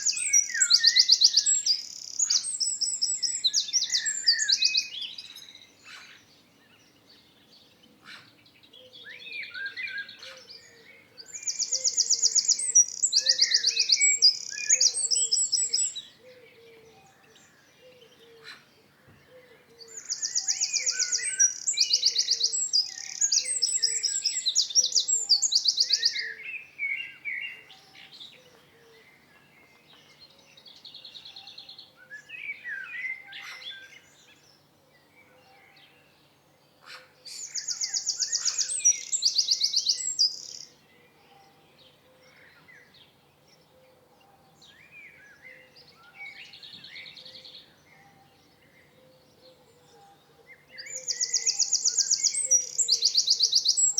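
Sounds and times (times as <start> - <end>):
songbirds singing: 0.0 - 53.9.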